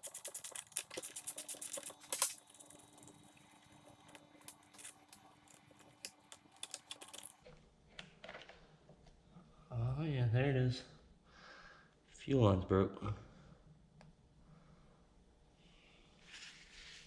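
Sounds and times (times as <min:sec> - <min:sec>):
plastic parts clicking and tapping: 0:00.0 - 0:07.4.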